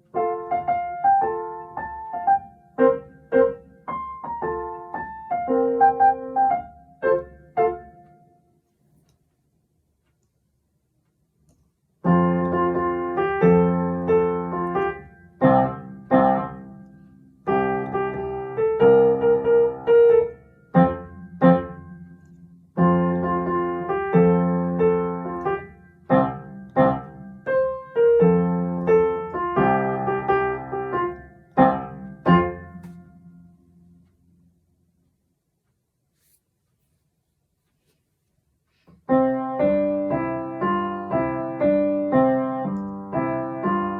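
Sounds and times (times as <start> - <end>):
piano playing march chords: 12.0 - 33.7, 39.1 - 43.9.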